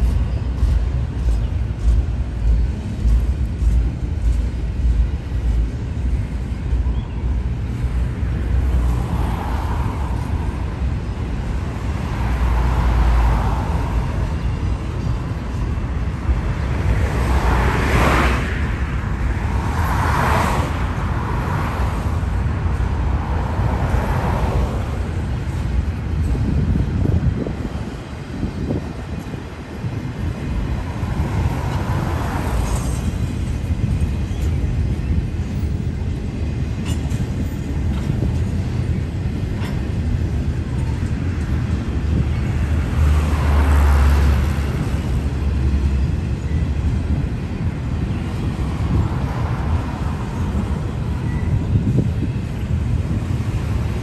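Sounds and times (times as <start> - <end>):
freight train wheels rumbling: 0.0 - 54.0
cars swishing past: 16.0 - 27.6, 41.5 - 54.0.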